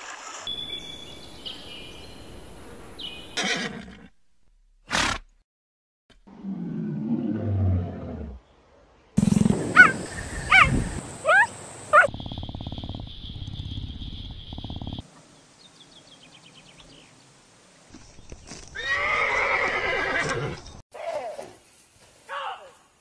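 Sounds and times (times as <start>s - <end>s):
faint chirps: 9.2s - 16.0s
horse whinnying: 18.7s - 20.6s.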